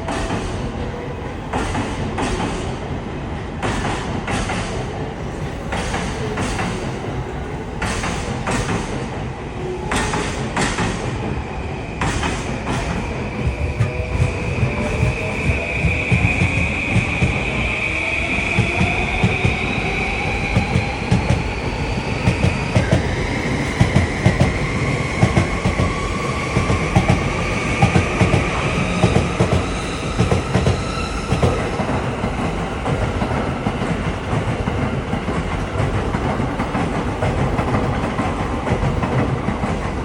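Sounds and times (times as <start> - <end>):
train wheels clacking on rails: 0.0 - 40.0.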